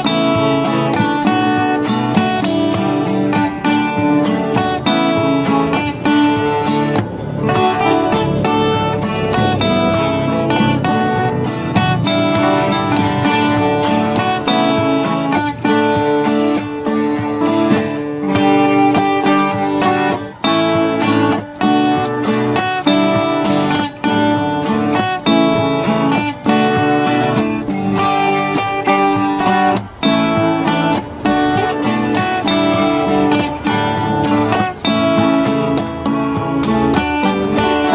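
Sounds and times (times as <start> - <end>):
strummed acoustic guitar: 0.0 - 37.9.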